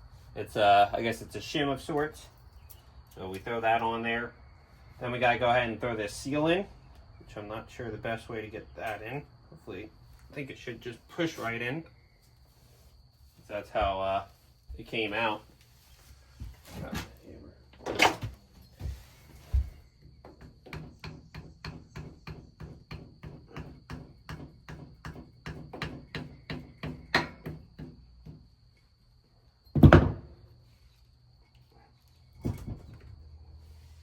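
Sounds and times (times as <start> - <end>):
loud thunk: 29.8 - 30.3.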